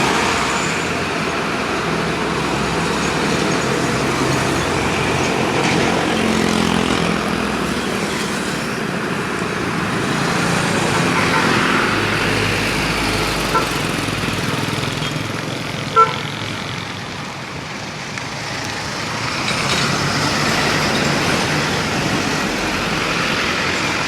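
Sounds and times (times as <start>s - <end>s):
road traffic noise: 0.0s - 24.0s
vehicle horn toot: 11.1s - 11.6s, 15.9s - 16.3s.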